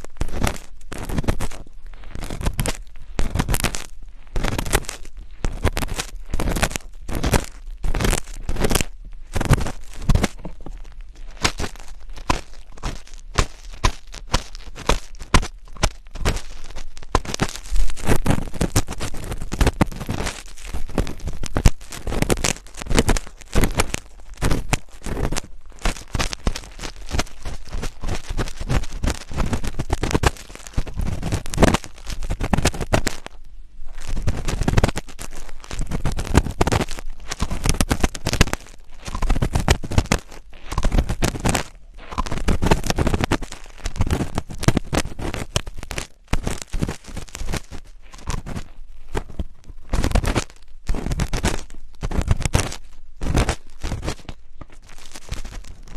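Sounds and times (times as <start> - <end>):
close scratching and scraping: 0.0 - 55.9.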